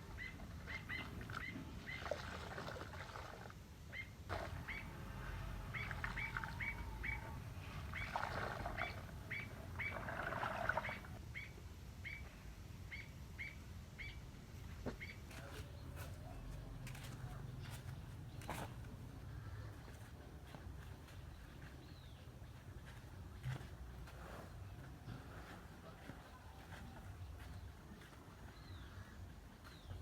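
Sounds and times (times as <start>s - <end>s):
bird chirping: 3.9s - 10.0s.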